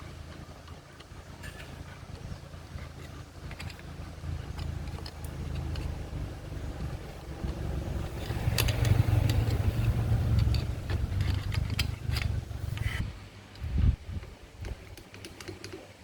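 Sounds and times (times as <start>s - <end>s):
small motorcycle engine running: 0.0s - 13.0s.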